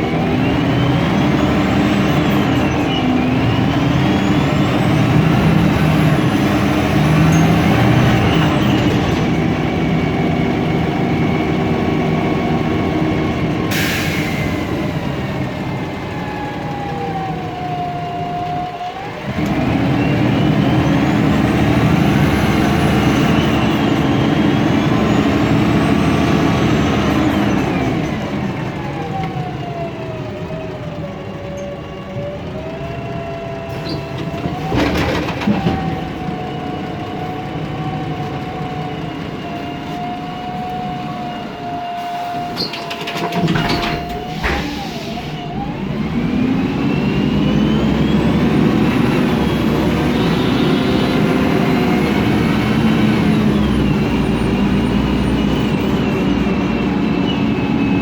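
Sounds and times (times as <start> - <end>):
bus engine running: 0.0 - 58.0
gearbox whine: 14.6 - 58.0.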